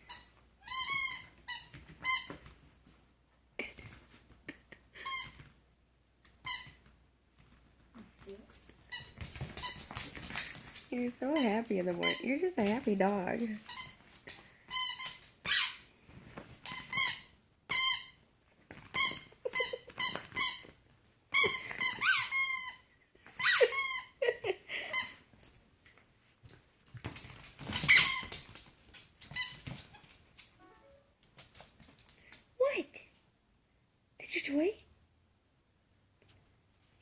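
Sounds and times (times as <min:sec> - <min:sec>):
squeaky toy squeaking: 0:00.0 - 0:02.4, 0:06.4 - 0:06.8, 0:13.7 - 0:14.0, 0:14.7 - 0:15.9, 0:16.6 - 0:18.2, 0:19.0 - 0:20.7, 0:21.3 - 0:22.8, 0:23.4 - 0:24.2.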